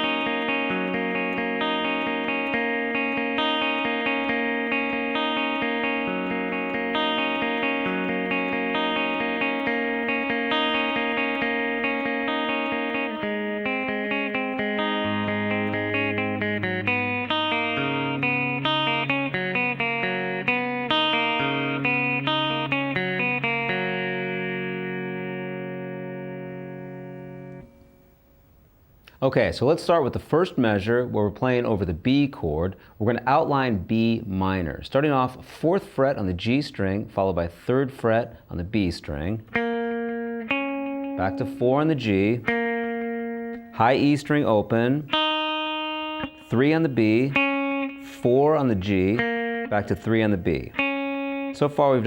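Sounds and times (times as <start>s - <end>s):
clean electric guitar arpeggios: 0.0s - 28.1s, 39.1s - 52.0s.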